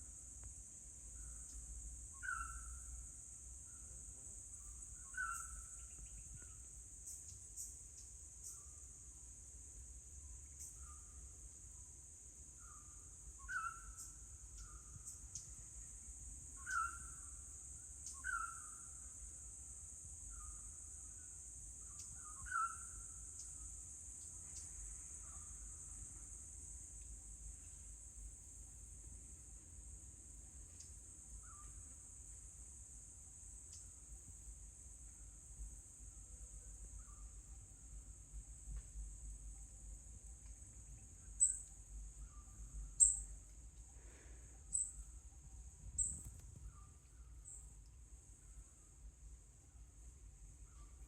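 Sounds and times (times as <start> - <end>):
bird whistled call: 2.2 - 2.6, 13.4 - 13.9.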